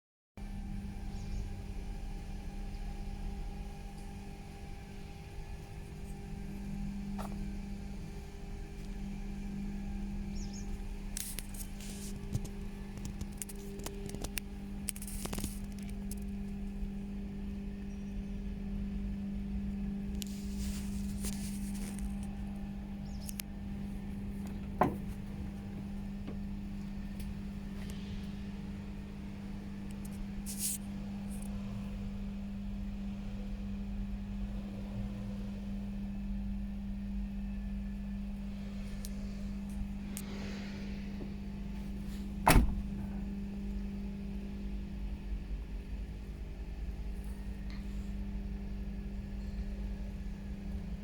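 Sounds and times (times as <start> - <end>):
machinery humming: 0.4 - 51.0
light clicks and scrapes: 11.1 - 16.4, 20.1 - 23.5, 29.9 - 31.6.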